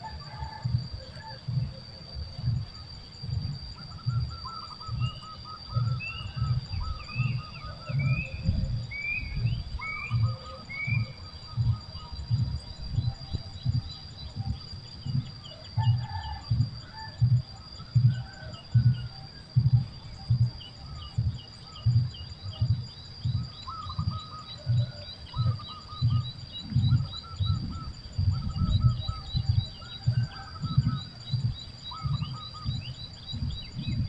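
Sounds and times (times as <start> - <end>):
steady high-pitched tone: 0.0 - 34.0
birds chirping and trilling: 3.7 - 16.3, 20.2 - 34.0.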